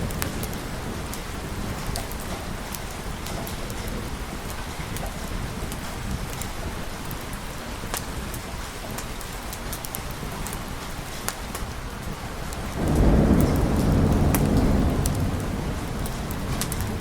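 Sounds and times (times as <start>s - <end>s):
low thunder rumble: 0.0s - 6.8s, 12.1s - 17.0s
steady rain: 0.0s - 17.0s.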